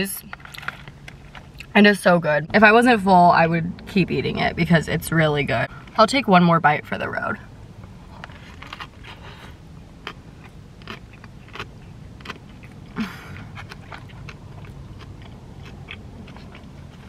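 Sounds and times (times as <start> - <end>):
person chewing: 8.1 - 17.0.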